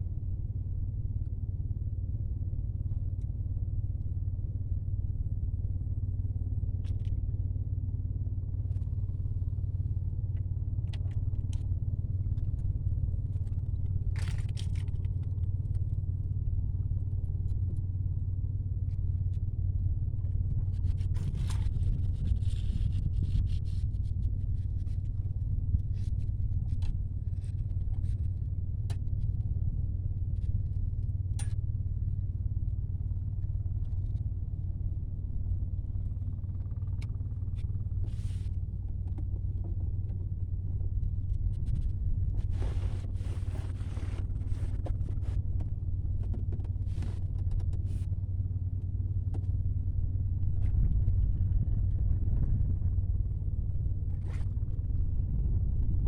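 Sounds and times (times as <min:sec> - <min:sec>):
wind buffeting microphone: 0:50.0 - 0:56.0.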